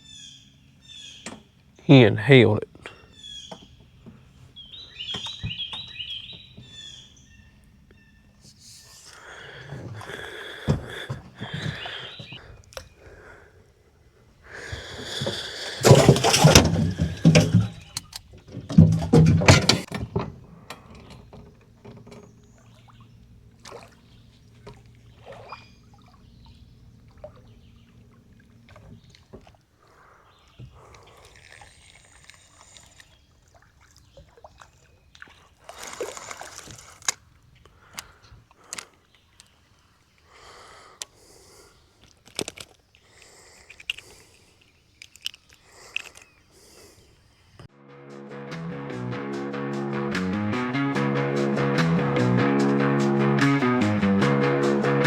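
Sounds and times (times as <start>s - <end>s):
knocks and clicks of gear: 1.2s - 1.5s, 5.1s - 6.8s, 14.8s - 22.4s
water splashing around a boat: 2.7s - 47.4s.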